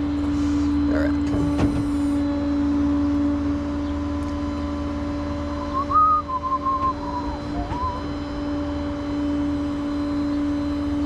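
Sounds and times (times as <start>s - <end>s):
truck engine idling: 3.2s - 11.0s
higher tone stepping in pitch: 5.7s - 8.4s.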